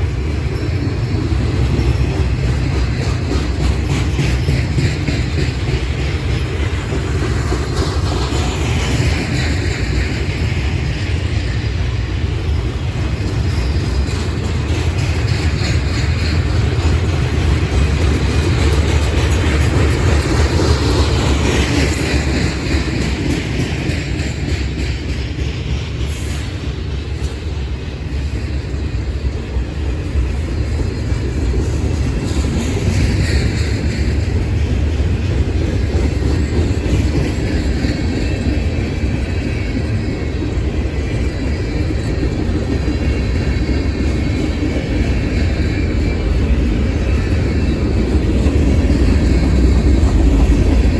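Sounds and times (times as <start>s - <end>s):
train wheels rumbling on track: 0.0s - 50.9s.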